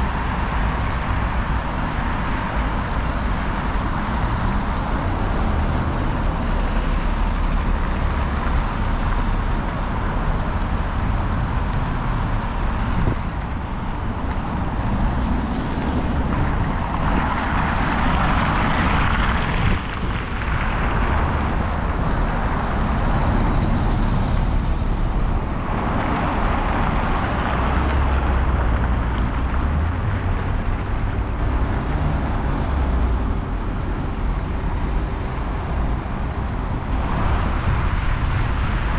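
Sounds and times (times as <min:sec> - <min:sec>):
road noise rumble: 0:00.0 - 0:38.9.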